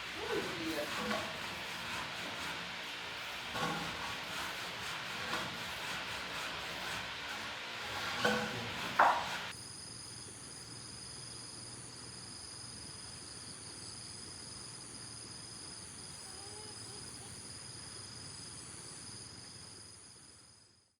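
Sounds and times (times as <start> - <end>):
crickets trilling: 9.5 - 20.8.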